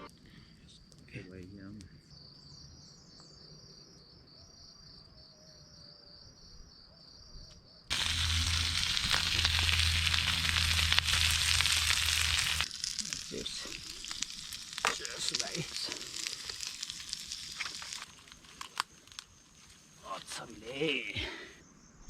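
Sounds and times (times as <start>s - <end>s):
faint insects chirping: 0.2s - 22.0s
soft crackling: 7.9s - 20.4s
loud sizzling hiss: 7.9s - 21.0s.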